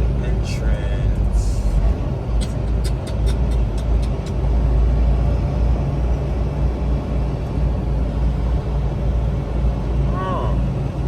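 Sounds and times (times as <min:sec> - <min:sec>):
truck diesel engine rumbling: 0:00.0 - 0:11.0
quick sharp ticks: 0:02.4 - 0:04.4.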